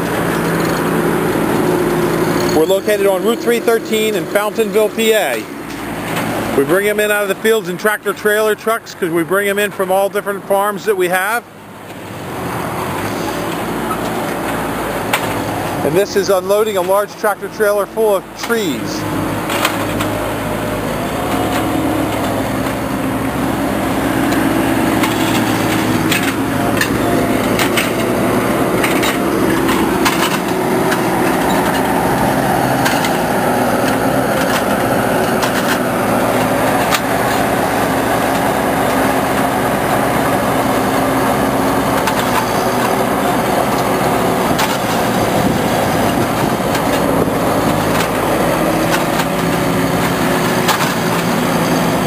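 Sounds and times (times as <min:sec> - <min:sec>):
machine engine running: 0:00.0 - 0:07.3, 0:12.6 - 0:52.0
sharp knocks and clacks: 0:19.4 - 0:20.3, 0:24.1 - 0:39.5, 0:41.9 - 0:51.9.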